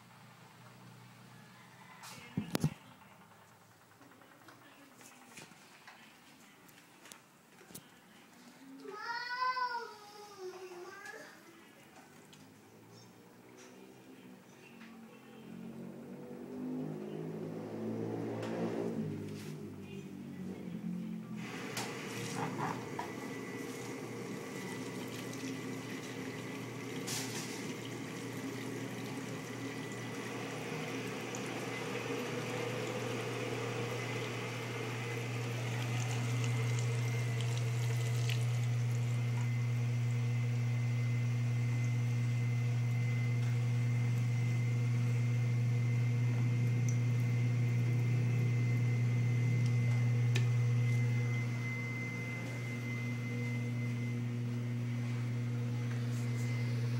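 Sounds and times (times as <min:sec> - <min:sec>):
dishwasher motor humming: 0:00.0 - 0:06.0, 0:15.0 - 0:56.9
water rushing: 0:21.4 - 0:39.6.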